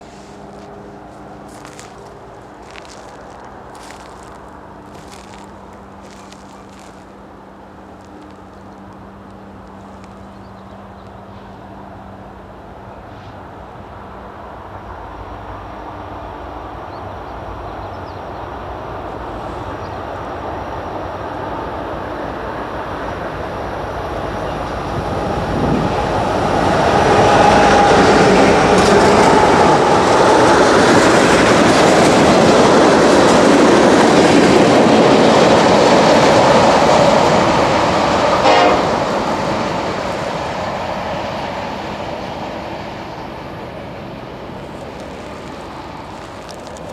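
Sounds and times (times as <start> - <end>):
freight train passing: 0.0 - 46.9
rail clatter: 24.6 - 46.9.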